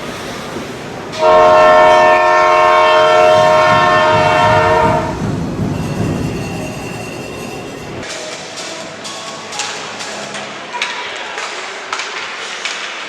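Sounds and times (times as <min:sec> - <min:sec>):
loud arena horn: 0:01.2 - 0:05.2.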